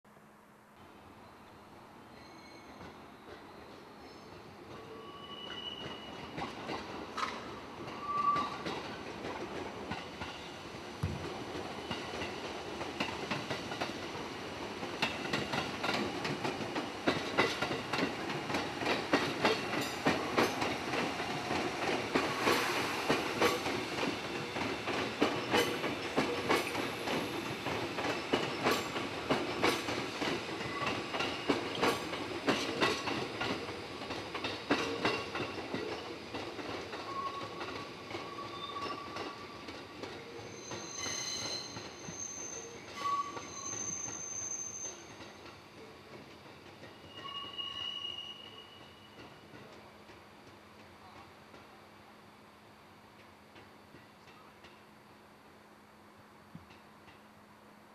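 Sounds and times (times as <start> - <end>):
thin wheel squeals: 2.1 - 2.8, 5.0 - 6.2, 40.4 - 45.1
train wheels clattering over joints: 11.2 - 42.3.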